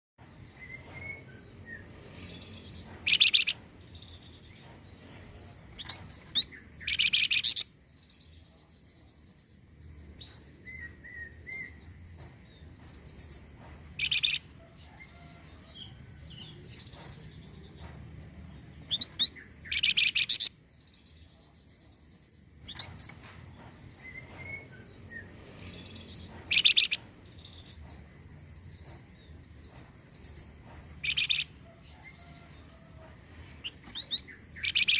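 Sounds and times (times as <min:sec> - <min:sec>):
soft bird chirps and warbles: 0:00.3 - 0:34.9.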